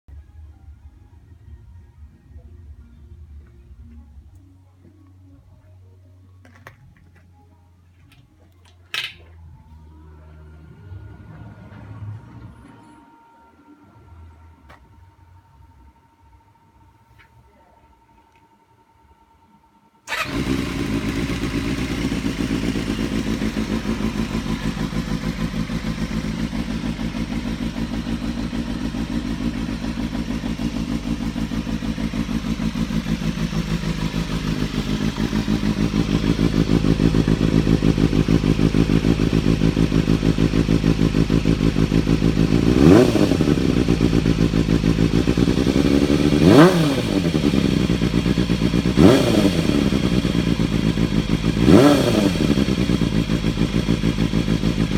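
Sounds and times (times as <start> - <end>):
motorcycle engine idling: 20.1 - 54.9
motorcycle throttle revving: 20.1 - 54.9.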